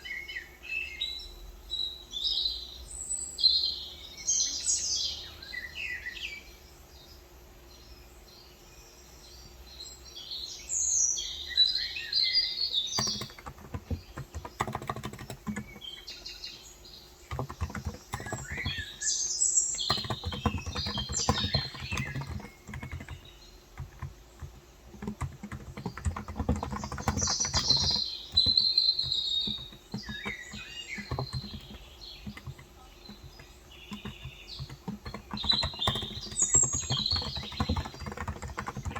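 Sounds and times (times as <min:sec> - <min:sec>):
small birds chirping: 0:00.0 - 0:38.9
keyboard typing: 0:12.8 - 0:16.2, 0:17.1 - 0:38.9.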